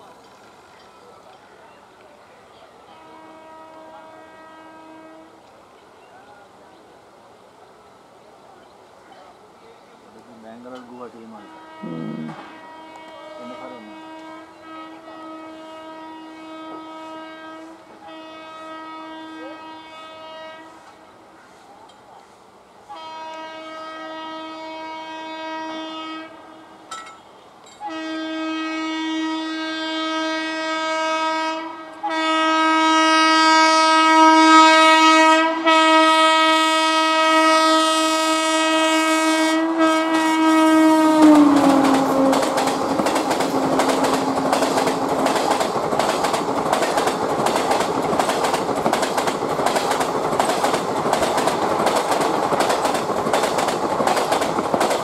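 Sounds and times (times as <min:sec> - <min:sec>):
train horn blasts: 0:02.9 - 0:05.5, 0:10.7 - 0:21.1, 0:22.8 - 0:26.9, 0:27.8 - 0:45.4
train wheels clickety-clack: 0:41.3 - 0:55.0.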